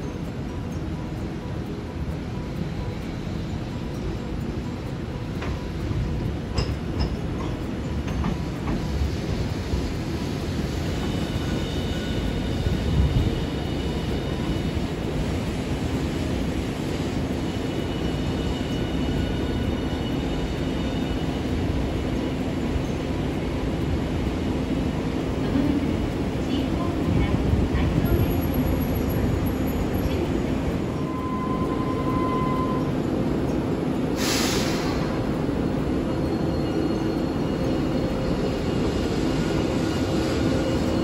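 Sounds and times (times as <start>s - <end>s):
tram electric whine: 0.0s - 41.0s
tram wheels clicking over track: 0.0s - 41.0s
tram wheels rumbling: 0.0s - 41.0s.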